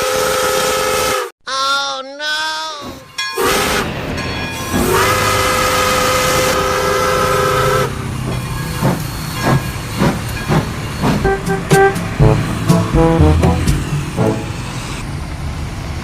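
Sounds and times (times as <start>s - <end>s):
regular thumps: 10.5s - 14.4s
vehicle air horn chord: 11.2s - 14.9s
short horn-like notes: 11.2s - 15.0s.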